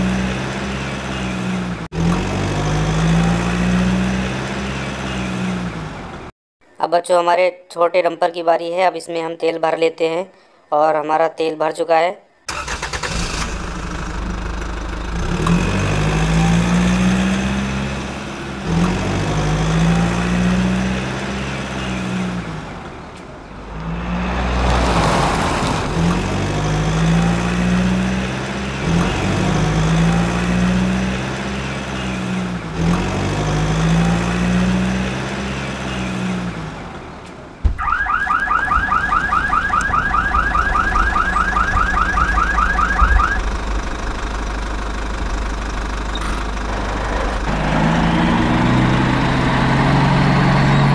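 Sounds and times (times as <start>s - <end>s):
looping engine sound effect: 38.3s - 45.6s.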